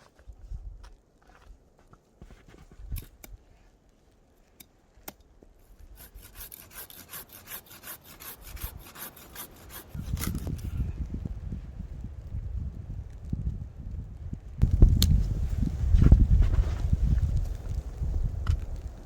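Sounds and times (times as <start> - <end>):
hand saw cutting wood: 5.9 - 10.7.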